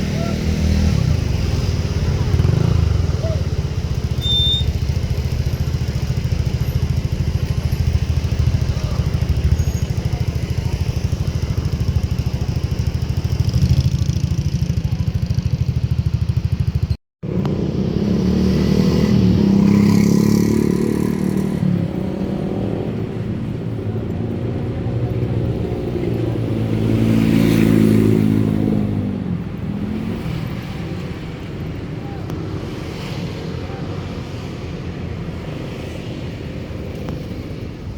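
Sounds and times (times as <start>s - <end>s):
engine revving up and down: 17.4s - 22.9s.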